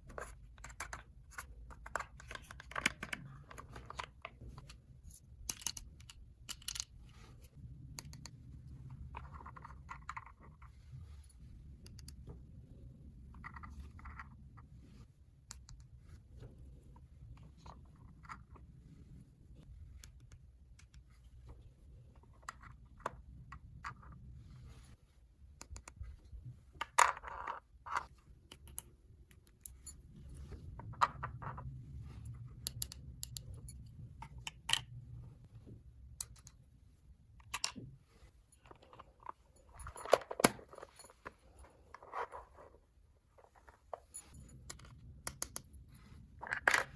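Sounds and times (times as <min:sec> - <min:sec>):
plastic toy pieces clicking: 0:05.4 - 0:06.9.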